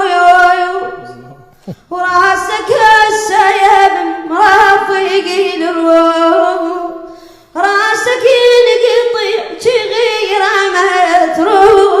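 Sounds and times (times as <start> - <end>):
person chanting a lament: 0.0 - 3.2.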